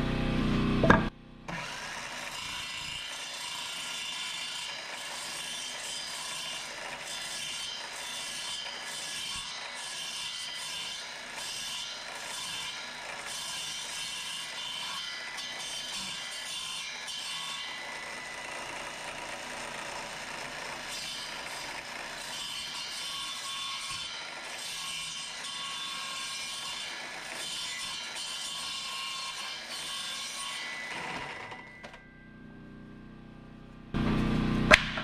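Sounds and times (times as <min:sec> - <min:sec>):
saw cutting wood: 0:00.0 - 0:32.2.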